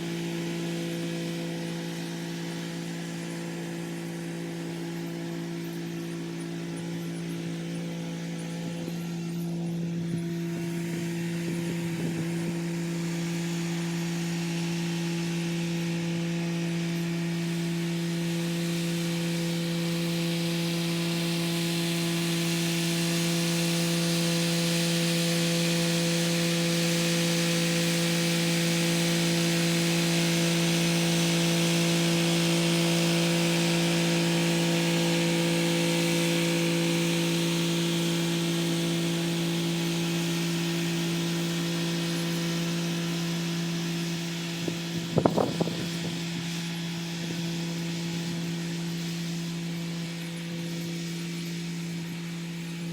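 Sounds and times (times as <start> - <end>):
rotary tiller working soil: 0.0 - 52.9
tractor diesel engine running: 44.2 - 46.8.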